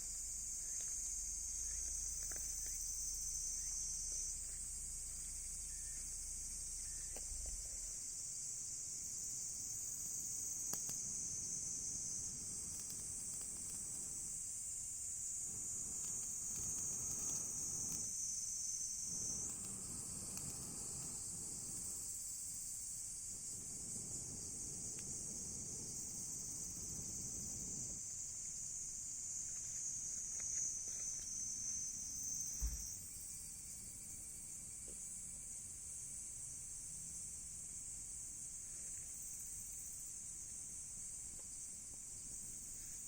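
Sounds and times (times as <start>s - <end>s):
insects trilling: 0.0s - 43.0s
bonfire crackling: 6.6s - 31.2s
low thump: 32.6s - 32.9s.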